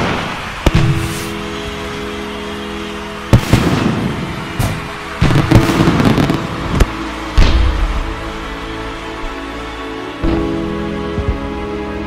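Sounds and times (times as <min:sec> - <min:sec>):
fireworks bangs: 0:00.0 - 0:08.7
fireworks crackle: 0:00.0 - 0:11.5.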